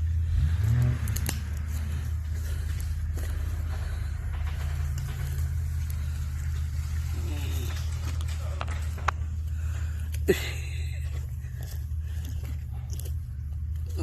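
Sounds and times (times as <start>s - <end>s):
car engine running at low revs: 0.0s - 14.0s
scattered clicks: 0.9s - 1.7s.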